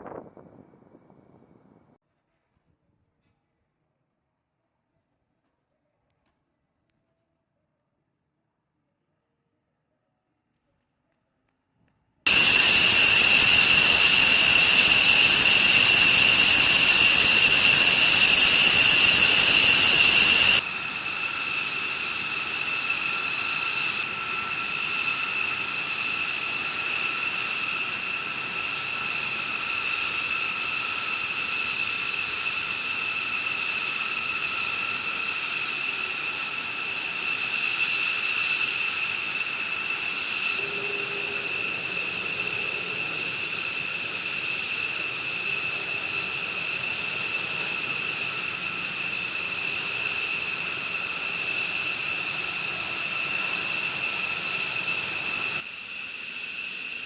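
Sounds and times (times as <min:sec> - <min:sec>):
loud rush of noise: 0:12.3 - 0:31.4
jet engine turbine whine: 0:12.3 - 0:57.0.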